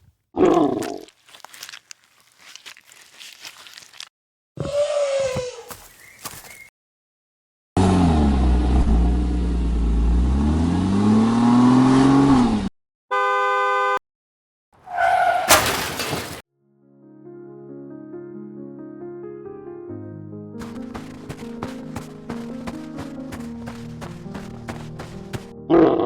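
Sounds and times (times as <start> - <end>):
car horn blast: 13.1 - 14.0
crash with shattering glass: 15.5 - 16.4
soft music: 16.6 - 25.7.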